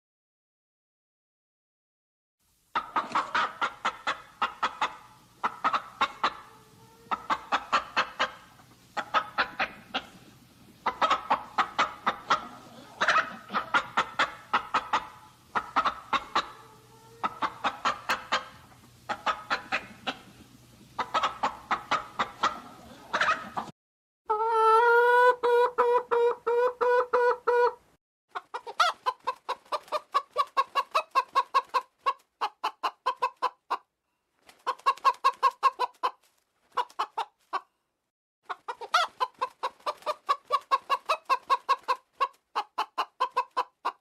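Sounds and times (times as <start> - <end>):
chicken clucking: 2.7 - 23.7, 24.3 - 33.9, 34.5 - 37.7, 38.4 - 44.0.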